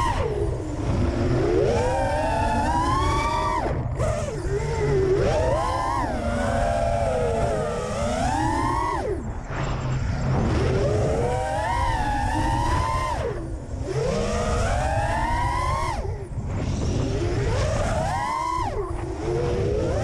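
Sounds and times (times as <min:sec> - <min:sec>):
quadcopter motors whining: 0:00.0 - 0:20.0
low rumble: 0:09.2 - 0:14.0, 0:15.9 - 0:17.8.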